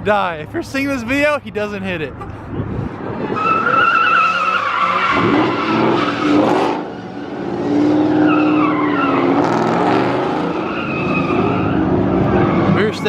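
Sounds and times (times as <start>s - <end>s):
tires squealing: 2.5s - 13.0s
car engine revving: 3.0s - 13.0s.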